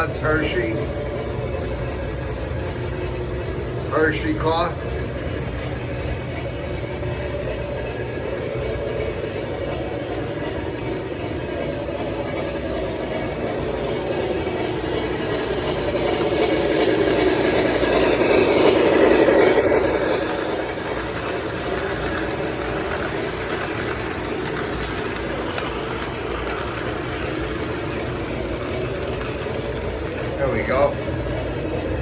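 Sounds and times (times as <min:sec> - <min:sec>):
model train rumbling on track: 0:00.0 - 0:32.0.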